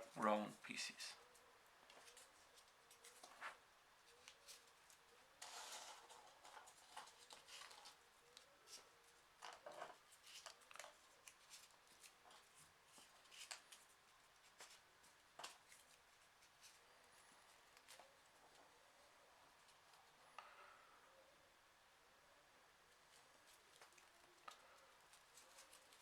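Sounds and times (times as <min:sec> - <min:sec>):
paper rustling and ticking: 0:01.2 - 0:18.6, 0:23.0 - 0:26.0.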